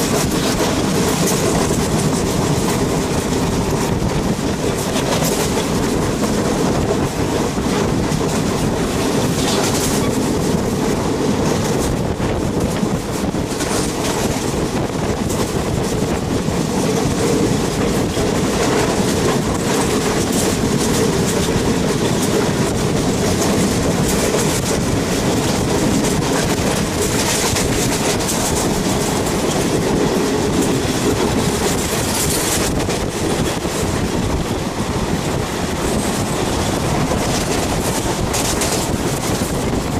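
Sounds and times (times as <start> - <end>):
train rumbling along track: 0.0 - 39.9.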